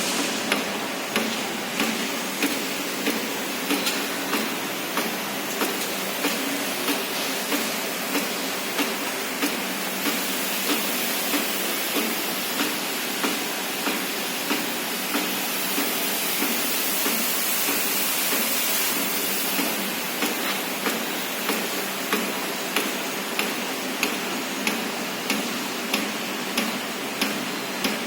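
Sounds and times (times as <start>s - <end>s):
boiler ticking: 19.6s - 28.0s.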